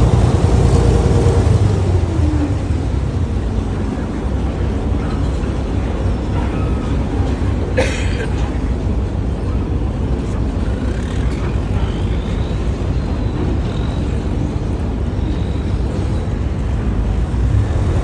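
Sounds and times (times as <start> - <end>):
boat engine rumbling: 0.0 - 18.0.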